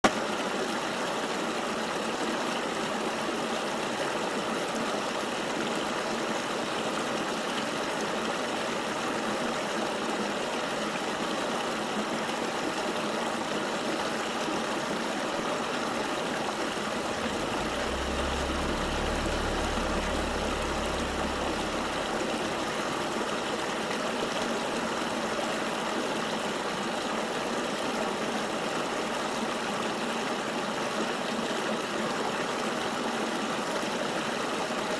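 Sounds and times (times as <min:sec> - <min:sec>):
river water rushing: 0:13.8 - 0:27.4
low rumble: 0:16.6 - 0:23.9.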